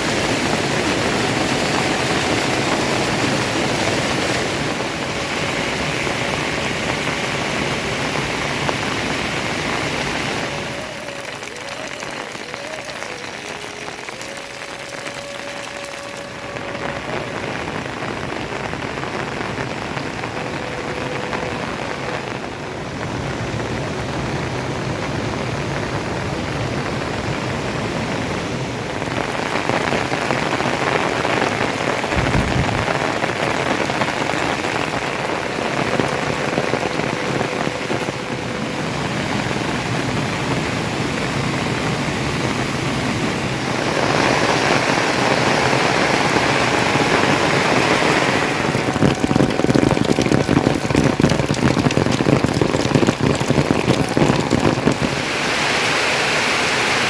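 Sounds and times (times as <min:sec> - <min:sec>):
heavy rain pattering: 0:00.0 - 0:57.0
low thump: 0:32.2 - 0:33.2.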